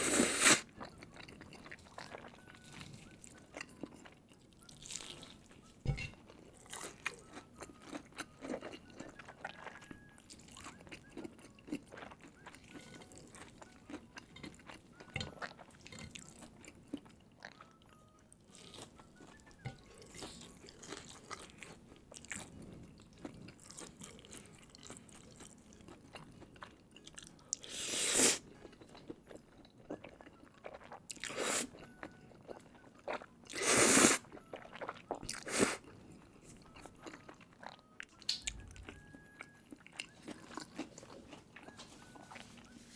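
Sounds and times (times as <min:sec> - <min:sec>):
chewing with wet mouth clicks: 0:00.6 - 0:17.9, 0:28.5 - 0:42.7.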